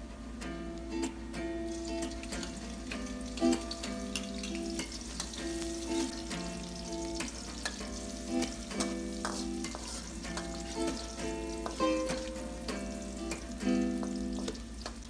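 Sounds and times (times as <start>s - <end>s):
background music: 0.0s - 14.8s
food sizzling in hot oil: 1.7s - 15.0s
metal spatula scraping wok: 4.1s - 12.3s.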